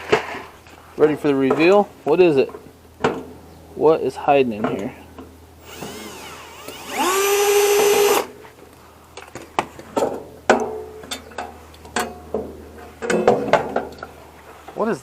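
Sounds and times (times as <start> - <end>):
power drill whining: 5.6 - 8.3.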